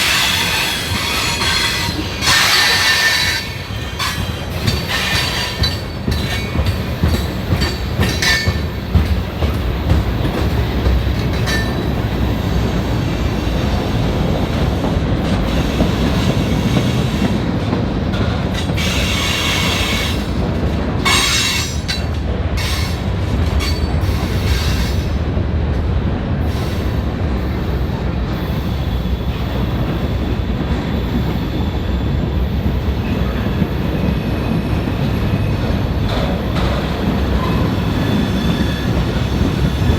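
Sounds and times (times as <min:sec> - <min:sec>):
high wheel squeal: 0:00.0 - 0:06.6, 0:37.3 - 0:39.9
wheels clacking over rail joints: 0:00.0 - 0:12.9, 0:14.3 - 0:25.1
train wheels rumbling on rail: 0:00.0 - 0:39.9.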